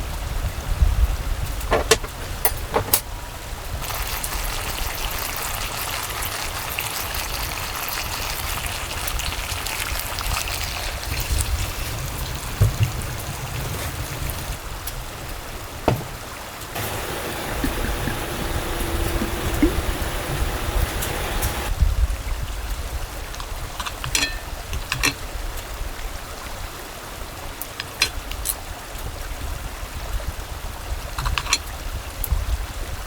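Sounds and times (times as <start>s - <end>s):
running stream water: 0.0s - 33.0s.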